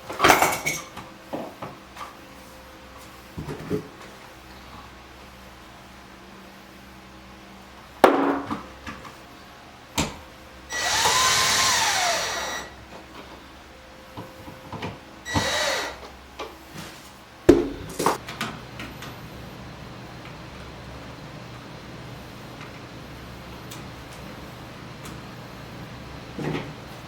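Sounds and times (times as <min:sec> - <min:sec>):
power drill spinning: 0:10.7 - 0:12.8, 0:15.3 - 0:16.0.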